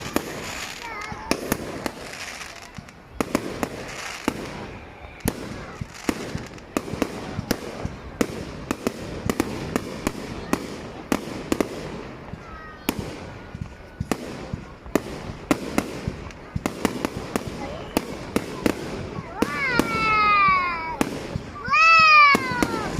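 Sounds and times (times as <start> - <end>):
firework whistles: 0.0 - 7.6, 16.8 - 22.9
fireworks bangs and cracks: 0.0 - 22.9.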